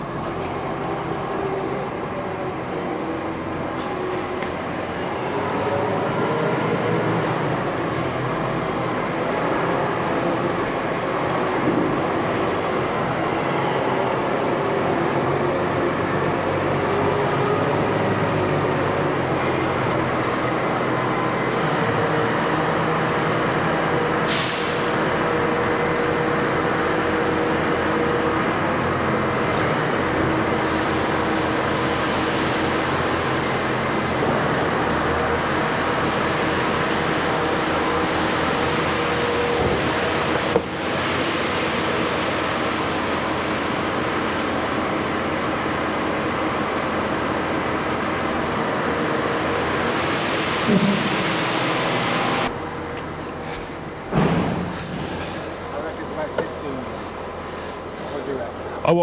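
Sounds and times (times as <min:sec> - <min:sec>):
diesel farm machinery running: 0:00.0 - 0:59.0
brief hiss: 0:24.3 - 0:24.9.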